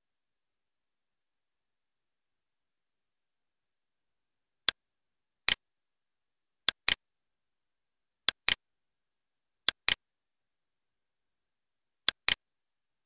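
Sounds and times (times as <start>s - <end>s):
computer mouse clicks: 6.6s - 7.0s, 8.2s - 8.6s, 9.6s - 10.0s, 12.1s - 12.4s.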